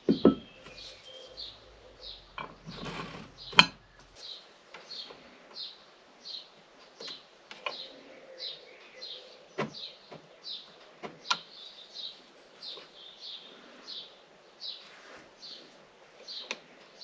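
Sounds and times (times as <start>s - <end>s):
bird chirping falling note: 0.0s - 4.4s.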